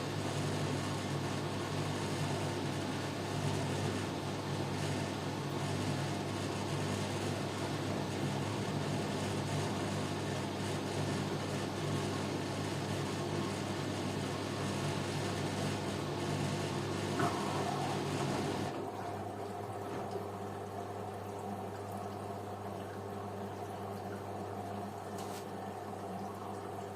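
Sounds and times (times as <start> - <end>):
washing machine hum: 0.0 - 26.9
water rushing into machine: 17.0 - 26.9.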